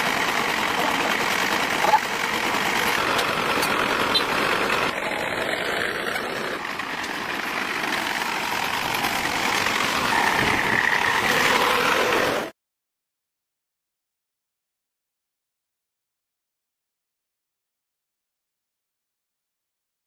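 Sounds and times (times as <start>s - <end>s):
engine running: 0.0s - 12.5s.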